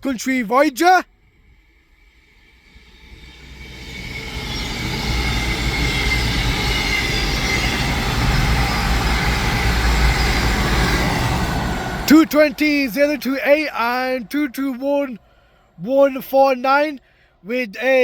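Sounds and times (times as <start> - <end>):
diesel train passing: 1.1 - 18.0
faint high squeal: 1.2 - 14.4.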